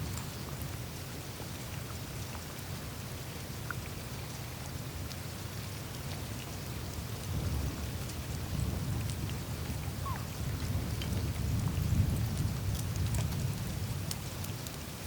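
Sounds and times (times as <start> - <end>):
meltwater trickling and rushing: 0.0 - 15.0
tiny ticks and clicks: 5.9 - 15.0.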